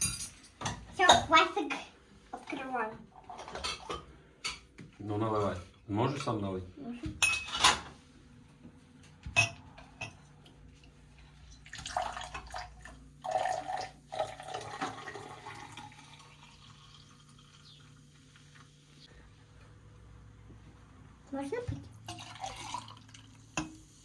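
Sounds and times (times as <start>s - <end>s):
glass clink: 0.0s - 0.5s
liquid pouring into glass: 11.6s - 18.1s, 22.0s - 23.7s.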